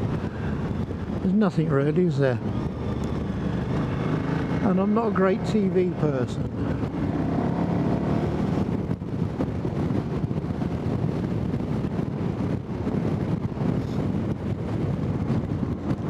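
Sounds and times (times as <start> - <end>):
motorcycle engine and road rumble: 0.0 - 16.0
wind buffeting microphone: 0.0 - 16.0.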